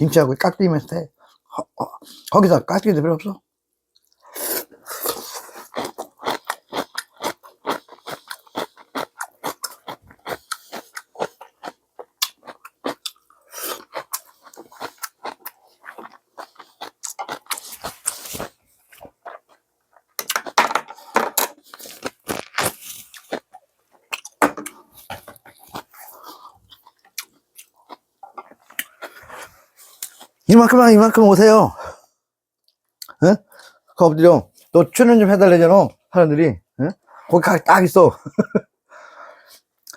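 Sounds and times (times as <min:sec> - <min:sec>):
chewing and crunching: 0:05.0 - 0:20.6, 0:21.6 - 0:30.4.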